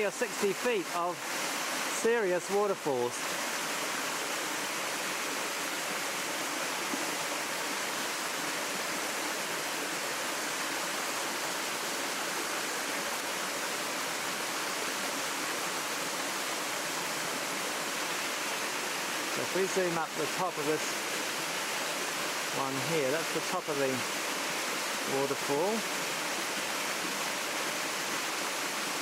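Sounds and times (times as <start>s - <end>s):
waterfalls rushing: 0.0s - 29.0s.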